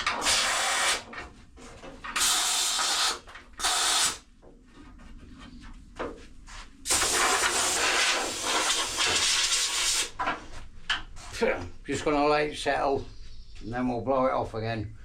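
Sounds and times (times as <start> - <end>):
compressed air blow gun hissing: 0.1 - 1.0, 2.2 - 4.3, 6.8 - 10.2.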